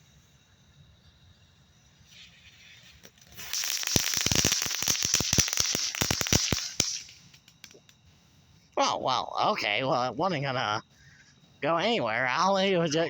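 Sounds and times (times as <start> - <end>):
firework crackling pops: 2.1 - 8.1
fuse fizzing: 3.3 - 7.9.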